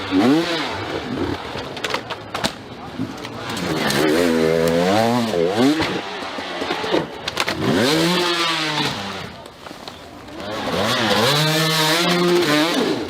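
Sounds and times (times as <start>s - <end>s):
dirt bike engine revving: 0.0s - 1.5s, 3.4s - 9.4s, 10.3s - 13.0s.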